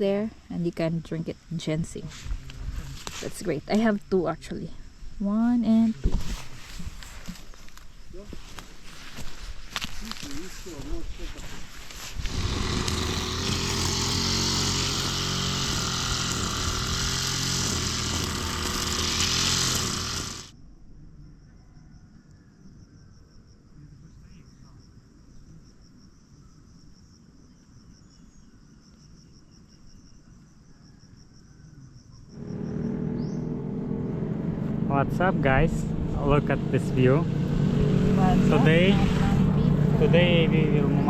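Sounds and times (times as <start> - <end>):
crickets trilling: 0.0 - 19.0, 19.7 - 33.6
motorcycle engine: 12.1 - 20.5, 32.4 - 41.0.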